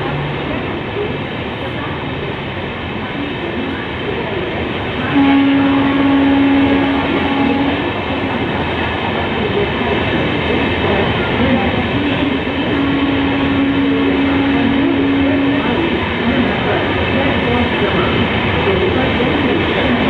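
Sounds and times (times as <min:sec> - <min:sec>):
train passing rumble and rattle: 0:00.0 - 0:20.0
train horn: 0:05.0 - 0:08.3, 0:12.1 - 0:16.2.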